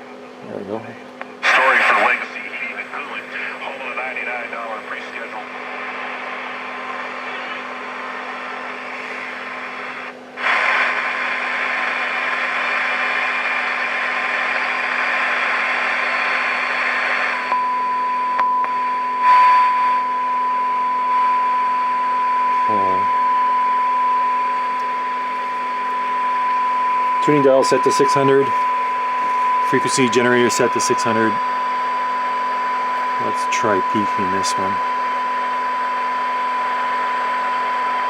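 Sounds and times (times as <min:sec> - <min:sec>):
radio static hiss: 0:00.8 - 0:17.5, 0:22.5 - 0:35.8
low steady hum: 0:17.4 - 0:38.0
steady test tone: 0:17.5 - 0:38.0.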